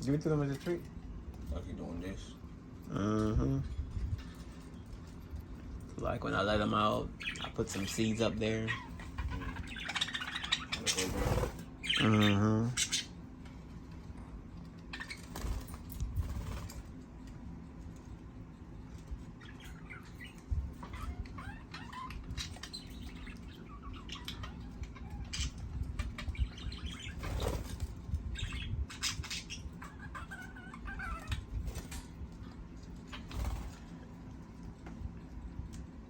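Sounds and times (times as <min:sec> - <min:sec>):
birds fluttering wings: 0:09.1 - 0:12.0, 0:13.8 - 0:19.3, 0:26.0 - 0:29.4, 0:31.1 - 0:35.1
light clicks and pecks: 0:31.2 - 0:36.0.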